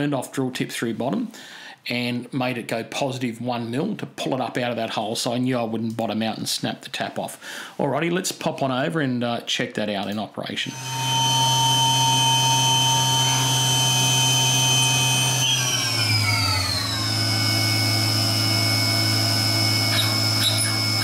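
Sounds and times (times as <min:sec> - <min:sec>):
milling machine spindle whine: 0:10.7 - 0:21.0.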